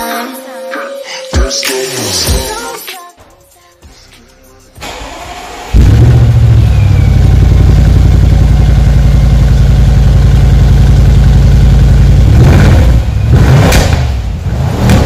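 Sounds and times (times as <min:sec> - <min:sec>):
car engine idling and revving: 0:04.8 - 0:15.0.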